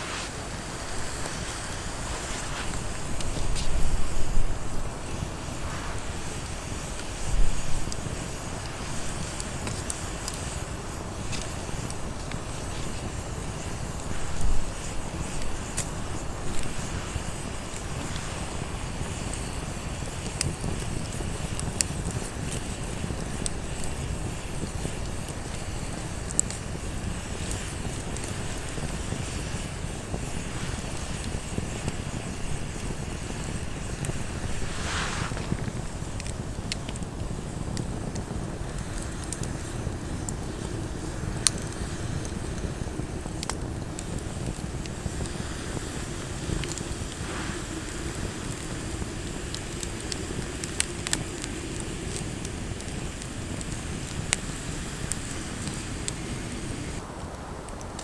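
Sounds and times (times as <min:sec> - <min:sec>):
short sharp crackles: 0:00.0 - 0:07.8, 0:34.1 - 0:36.3
wind rumble on microphone: 0:00.0 - 0:58.0.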